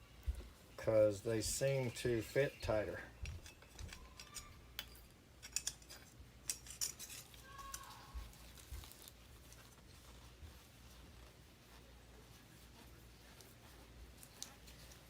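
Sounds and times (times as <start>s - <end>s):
faint metallic clicks and clinks: 3.1s - 9.9s, 13.3s - 15.0s.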